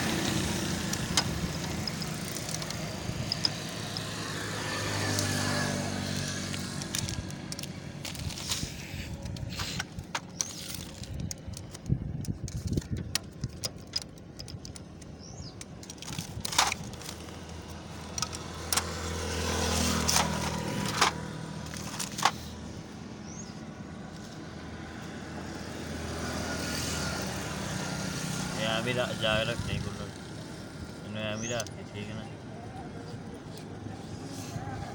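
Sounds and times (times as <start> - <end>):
motor vehicle engine: 0.0 - 34.9
metal tools clinking: 0.8 - 4.2.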